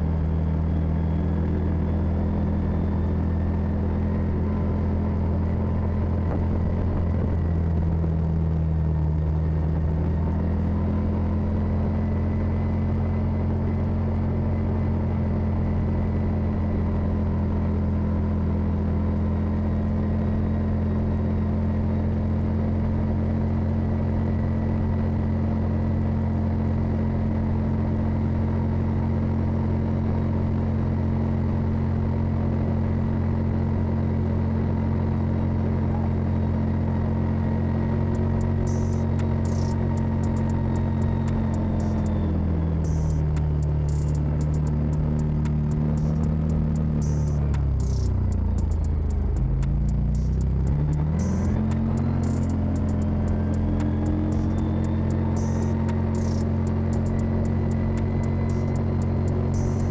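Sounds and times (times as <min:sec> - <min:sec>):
vehicle engine droning: 0:00.0 - 0:59.9.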